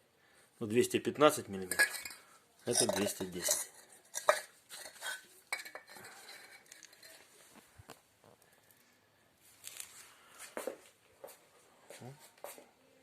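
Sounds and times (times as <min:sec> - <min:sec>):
bricks knocking and clinking: 0:01.6 - 0:07.0.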